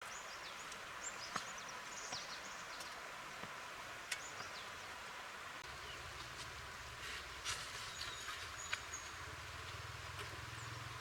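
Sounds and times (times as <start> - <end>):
small birds chirping: 0.0 - 3.2, 4.0 - 5.0, 5.6 - 6.4, 7.6 - 11.0
steady background hiss: 0.0 - 11.0.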